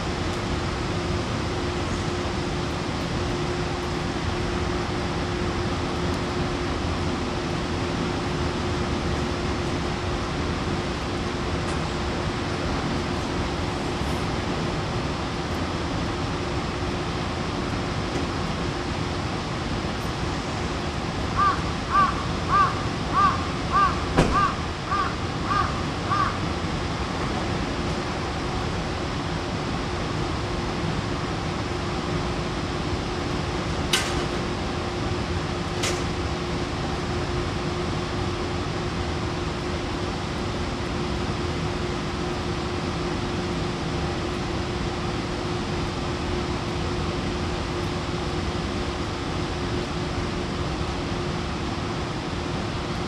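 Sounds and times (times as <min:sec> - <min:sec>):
constant hum: 0:00.0 - 0:53.0
crow cawing: 0:21.4 - 0:26.4.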